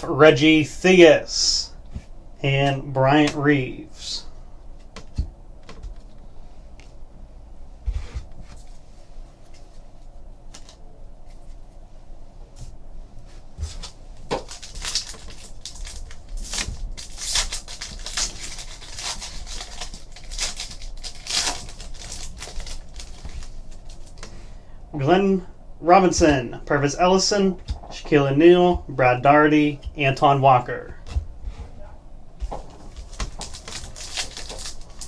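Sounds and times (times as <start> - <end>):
cards rustling: 13.6 - 31.5, 32.4 - 35.0
foil pack crinkling and tearing: 13.7 - 24.3, 32.6 - 35.0.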